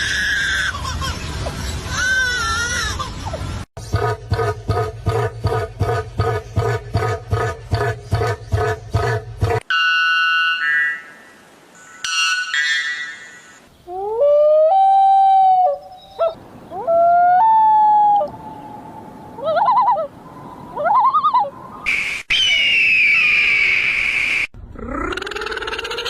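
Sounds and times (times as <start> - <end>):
short warbling calls: 9.7 - 13.6
rising animal calls: 24.7 - 26.0.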